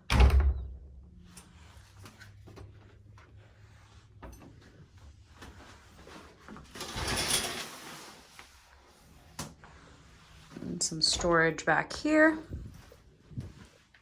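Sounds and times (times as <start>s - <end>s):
scraping rustling noise: 3.3s - 11.5s, 12.4s - 14.0s.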